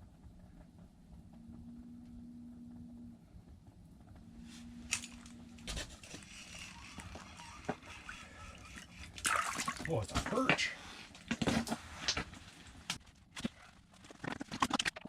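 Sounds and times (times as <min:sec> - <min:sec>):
low steady hum: 0:00.0 - 0:14.1
fishing gear clicks and rustling: 0:04.8 - 0:14.9.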